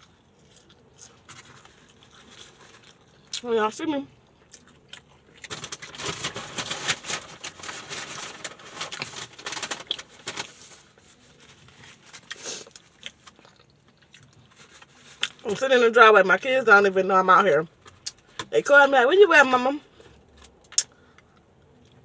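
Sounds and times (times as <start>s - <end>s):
crunchy chewing: 0.0s - 3.5s, 4.1s - 6.5s, 8.9s - 15.5s.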